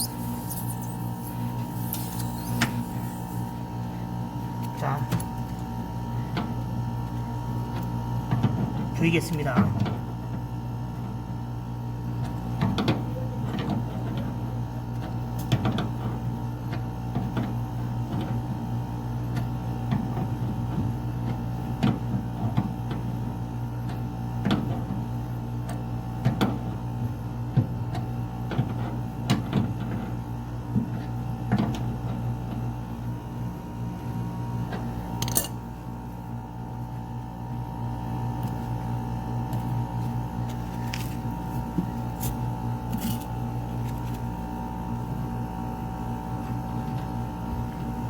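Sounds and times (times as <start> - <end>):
air conditioner humming: 0.0 - 10.2.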